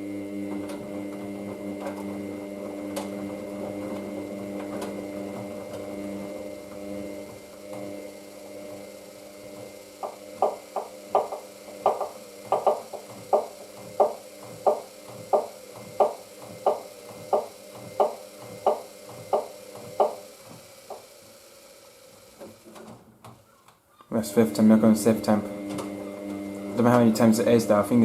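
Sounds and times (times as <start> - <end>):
washing machine drum turning: 0.4 - 21.1, 24.3 - 28.0
washing machine knocking: 9.5 - 21.0.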